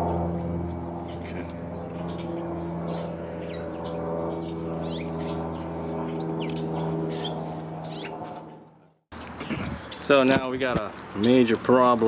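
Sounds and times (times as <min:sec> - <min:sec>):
low mechanical hum: 0:00.0 - 0:08.9
small birds chirping: 0:00.0 - 0:12.0.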